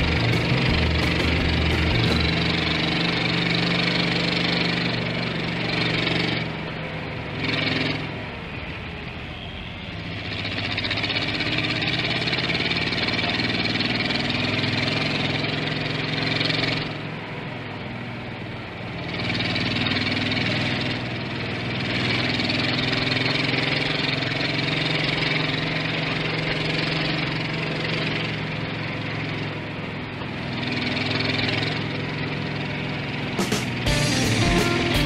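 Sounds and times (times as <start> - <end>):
engine and exhaust rumbling: 0.0 - 35.0.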